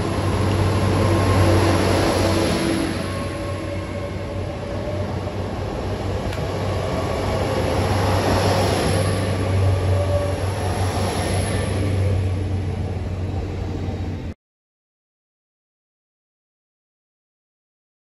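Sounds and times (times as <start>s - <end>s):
train diesel engine hum: 0.0s - 14.4s
train wheel and rail noise: 0.0s - 14.4s.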